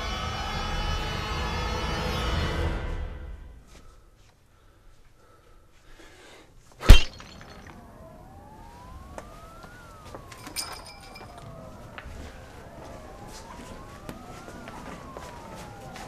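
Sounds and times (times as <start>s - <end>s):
loud bang: 6.8s - 7.8s
police siren wailing: 6.9s - 16.0s.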